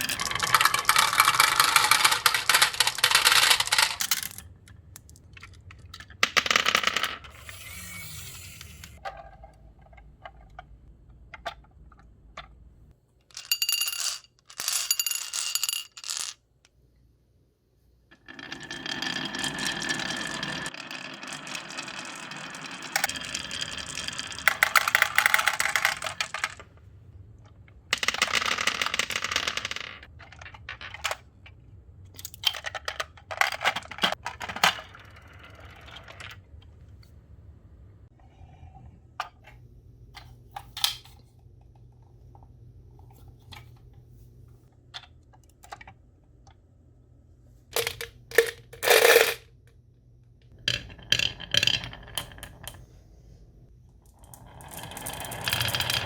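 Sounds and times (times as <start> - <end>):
marbles rolling and clattering: 0.0 - 10.6, 13.3 - 16.4, 18.1 - 26.8, 27.9 - 31.6, 32.3 - 36.6, 47.8 - 49.4, 50.5 - 52.9, 54.0 - 56.0.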